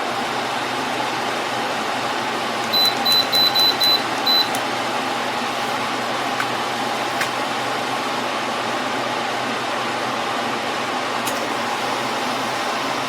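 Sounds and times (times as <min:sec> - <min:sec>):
air conditioner fan hum: 0:00.0 - 0:13.0
short high beeps: 0:02.7 - 0:04.5.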